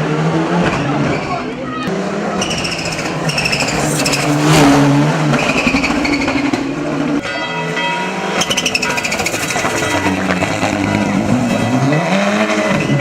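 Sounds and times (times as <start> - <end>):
car engine at high revs: 1.8 - 7.2, 9.2 - 13.0
engine crackling: 1.9 - 7.2.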